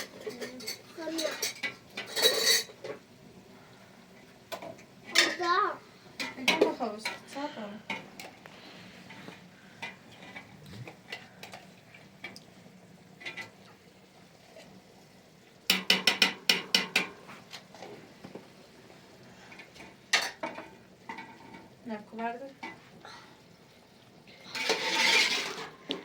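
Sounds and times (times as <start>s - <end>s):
metal utensils clinking against pots: 0.0s - 3.0s, 4.5s - 5.6s, 6.2s - 8.4s, 15.7s - 17.6s, 19.5s - 21.7s, 24.5s - 26.0s.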